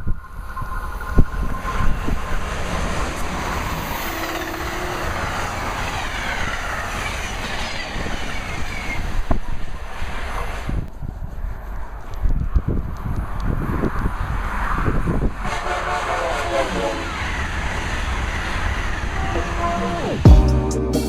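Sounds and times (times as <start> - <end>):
train wheels rushing on rail: 0.8 - 19.7
wind gusts on microphone: 5.0 - 15.8.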